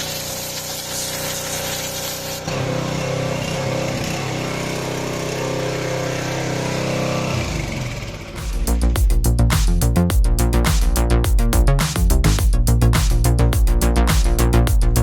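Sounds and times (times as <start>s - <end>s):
water jet hissing: 0.0s - 2.8s
pressure washer engine running: 0.0s - 9.8s.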